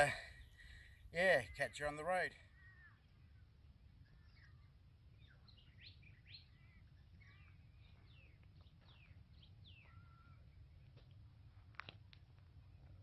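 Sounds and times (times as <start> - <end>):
birds chirping and whistling: 4.0 - 10.6.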